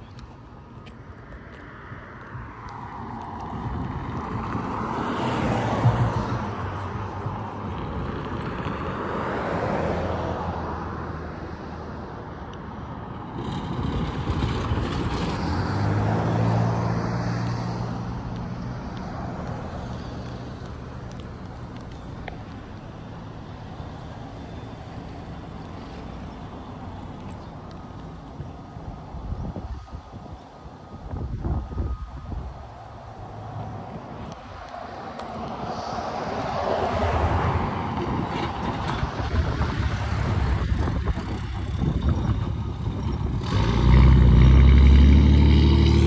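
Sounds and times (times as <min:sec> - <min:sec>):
diesel locomotive engine drone: 0:12.1 - 0:46.0.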